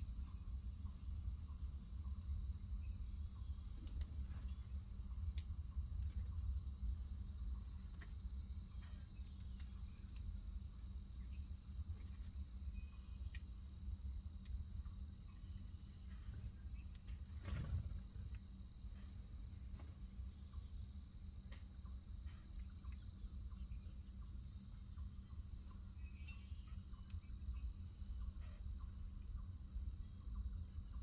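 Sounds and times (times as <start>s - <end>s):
crickets chirping chorus: 0.0s - 31.0s
low background rumble: 0.0s - 31.0s
faint ticks: 3.8s - 6.2s, 7.8s - 10.5s, 13.3s - 13.5s, 21.5s - 23.1s, 25.6s - 27.7s
high pulsing insect trill: 4.8s - 31.0s.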